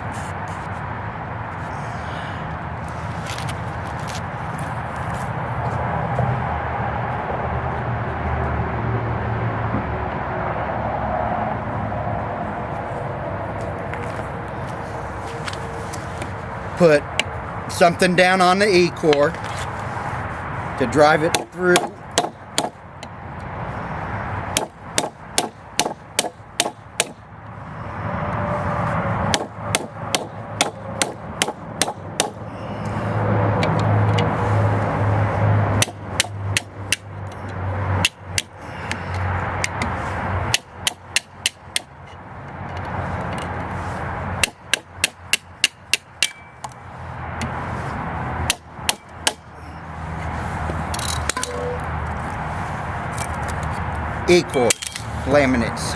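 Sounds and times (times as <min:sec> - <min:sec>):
rapid hammer blows on metal: 0:21.2 - 0:22.8, 0:24.5 - 0:27.2, 0:29.3 - 0:32.4, 0:35.8 - 0:37.1.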